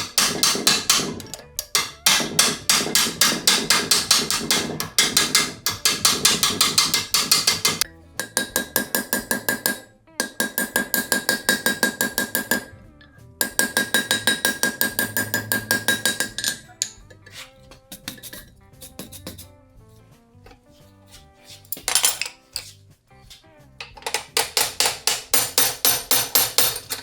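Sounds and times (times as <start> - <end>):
hammer striking anvil: 0.0 - 12.8, 13.4 - 17.1, 24.0 - 27.0.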